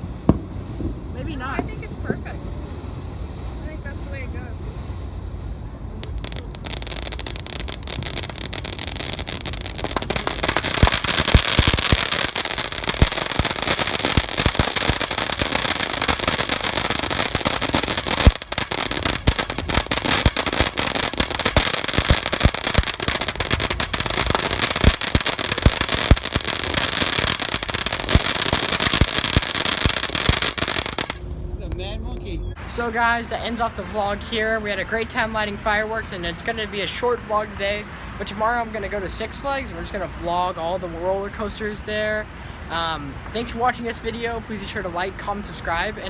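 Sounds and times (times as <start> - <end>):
firework crackling pops and bangs: 0.0 - 4.7, 5.9 - 31.3.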